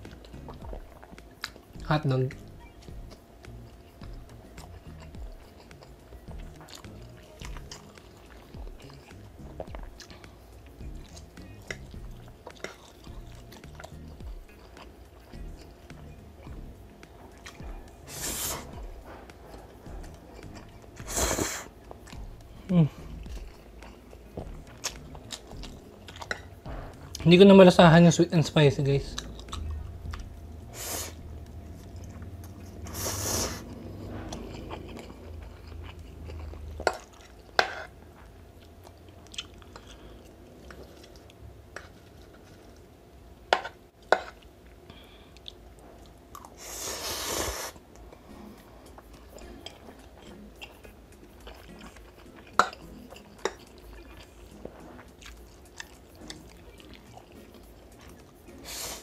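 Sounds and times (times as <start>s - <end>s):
chewing and slurping noodles: 2.9s - 22.4s, 29.1s - 42.7s, 45.4s - 59.0s
noisy swishes: 26.6s - 35.6s.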